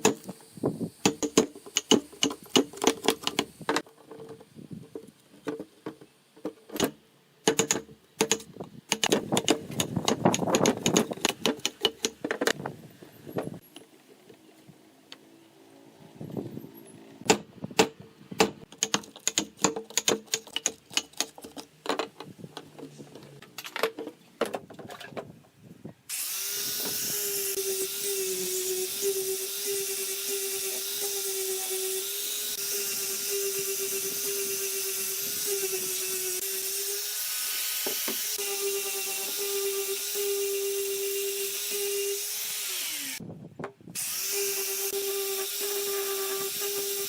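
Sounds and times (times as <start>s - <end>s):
electric drill whining: 26.1s - 43.2s, 44.0s - 47.0s.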